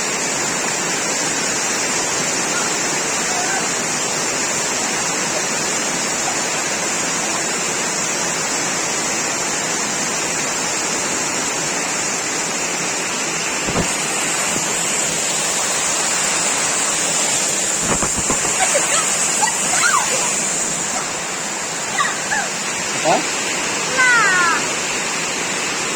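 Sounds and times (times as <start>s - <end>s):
heavy rain falling: 0.0s - 25.9s
short knock: 13.6s - 14.0s.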